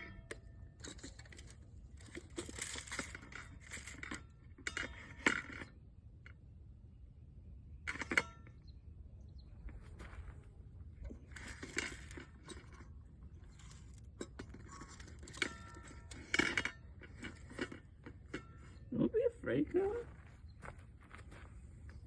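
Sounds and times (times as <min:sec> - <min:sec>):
metal bird feeder rattling: 0:00.0 - 0:05.7, 0:11.0 - 0:18.9.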